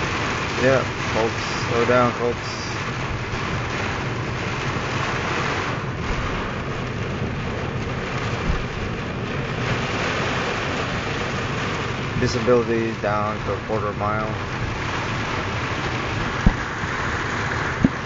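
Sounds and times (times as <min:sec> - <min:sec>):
heavy rain on a car: 0:00.0 - 0:18.0
strong wind: 0:14.4 - 0:18.0.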